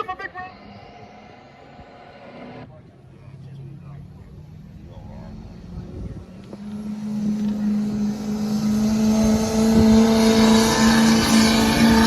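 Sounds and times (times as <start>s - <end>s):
truck engine running under load: 4.1s - 12.0s.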